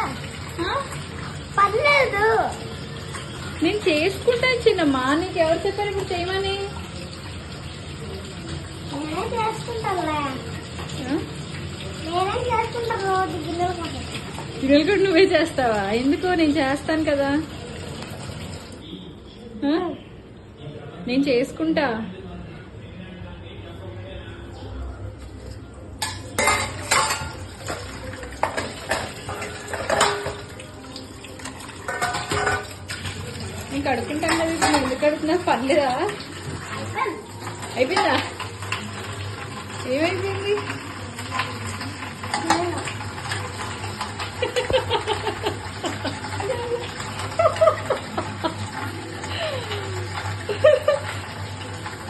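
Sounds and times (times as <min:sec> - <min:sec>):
dishes and cutlery clinking: 0:26.0 - 0:39.8, 0:40.4 - 0:52.0
soft chuckling laughter: 0:44.4 - 0:48.7.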